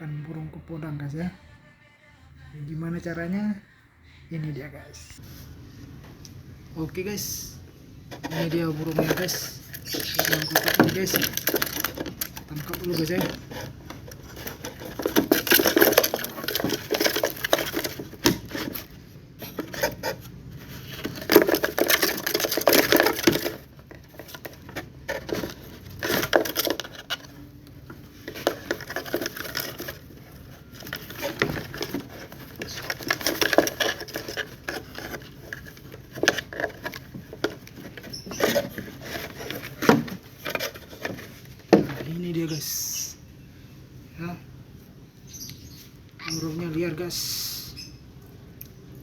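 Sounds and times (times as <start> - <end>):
rustling: 7.0 - 42.8.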